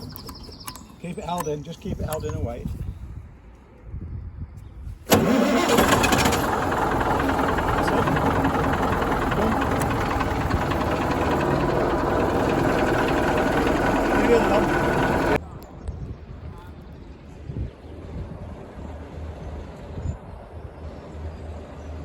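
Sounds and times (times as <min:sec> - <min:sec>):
engine starting and running: 0:05.1 - 0:15.4.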